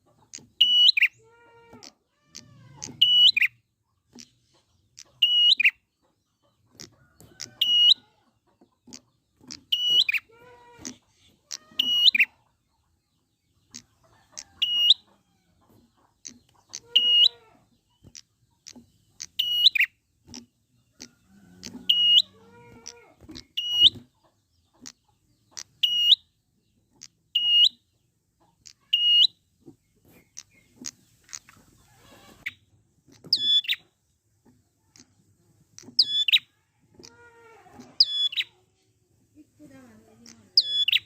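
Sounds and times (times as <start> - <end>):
faint bird chirps: 0.0 - 39.0, 39.6 - 41.0
bird high sharp calls: 0.2 - 1.2, 1.8 - 3.6, 4.2 - 5.9, 6.7 - 8.1, 8.9 - 12.4, 13.6 - 15.2, 16.2 - 24.1, 24.8 - 26.3, 27.0 - 28.0, 28.6 - 29.4, 30.0 - 33.9, 35.8 - 38.6, 40.3 - 41.0.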